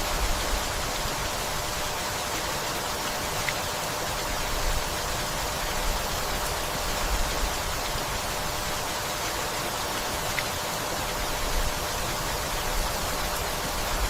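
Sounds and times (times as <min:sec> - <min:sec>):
rain hissing: 0:00.0 - 0:14.0.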